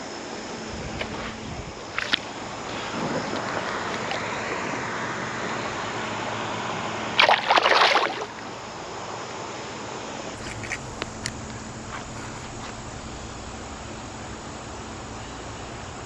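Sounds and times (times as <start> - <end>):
river water rushing: 1.8 - 16.0
loud splashing: 7.1 - 8.4.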